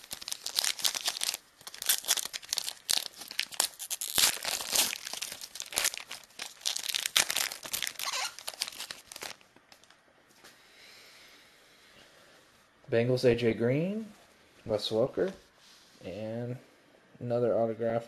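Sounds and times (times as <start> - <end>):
foil wrapper tearing and crinkling: 0.0 - 9.9.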